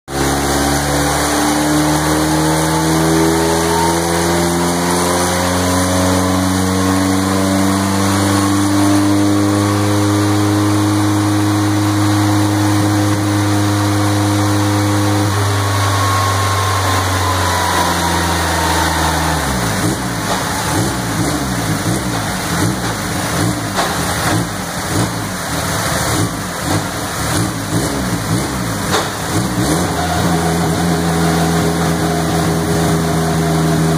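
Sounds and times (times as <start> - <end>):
engine at full throttle: 0.1 - 33.9
rough uneven engine sound: 13.0 - 25.4.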